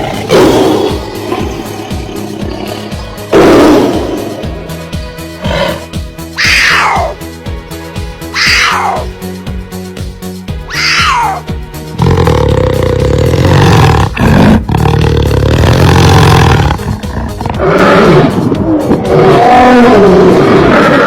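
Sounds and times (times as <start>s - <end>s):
big cat roaring: 5.4s - 7.2s, 12.0s - 21.0s.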